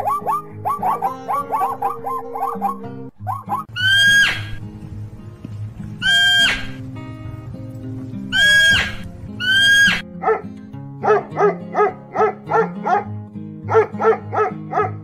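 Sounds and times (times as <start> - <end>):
high animal calls: 0.0 - 4.6, 5.9 - 6.8, 8.2 - 10.4
background music: 0.0 - 15.0
small dog barking: 9.8 - 13.1, 13.7 - 15.0.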